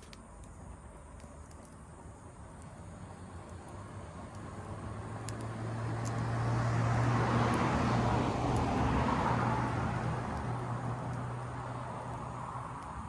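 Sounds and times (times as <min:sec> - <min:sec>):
campfire crackles: 0:00.0 - 0:13.0
vehicle passing by: 0:03.8 - 0:13.0.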